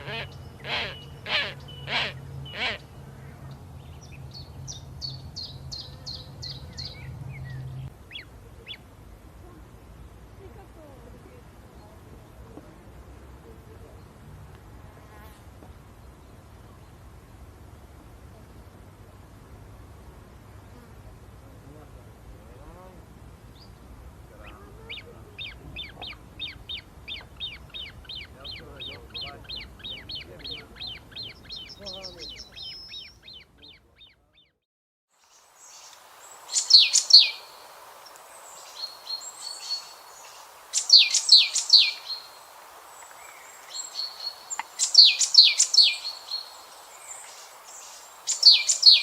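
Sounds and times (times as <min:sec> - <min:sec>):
soft bird chirps: 0:24.4 - 0:34.6, 0:35.2 - 0:49.0.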